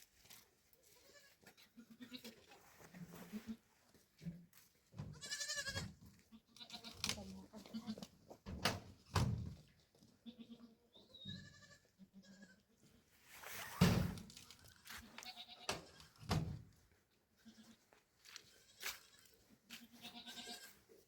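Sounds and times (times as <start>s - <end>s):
goats bleating: 5.1s - 7.0s, 10.3s - 12.8s, 15.0s - 16.2s, 18.6s - 20.8s.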